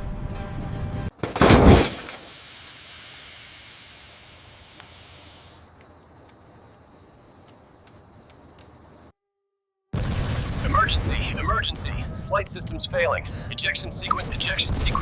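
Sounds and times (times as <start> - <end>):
long dying hiss: 2.1 - 5.8
faint regular ticks: 4.5 - 8.9
loud boom: 10.0 - 12.2
rumbling explosion blast: 10.0 - 12.3, 14.3 - 15.0.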